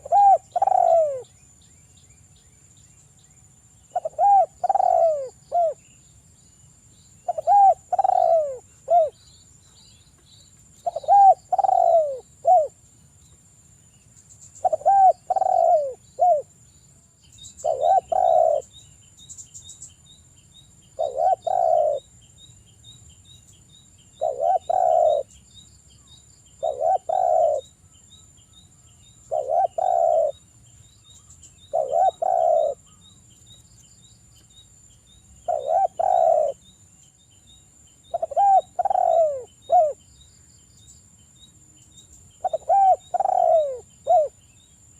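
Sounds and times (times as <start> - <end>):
dove cooing: 0.0 - 1.3, 3.9 - 5.8, 7.2 - 9.2, 10.8 - 12.8, 14.6 - 16.5, 17.6 - 18.7, 21.0 - 22.1, 24.2 - 25.3, 26.6 - 27.7, 29.3 - 30.4, 31.7 - 33.0, 35.5 - 36.6, 38.1 - 40.0, 42.4 - 44.4.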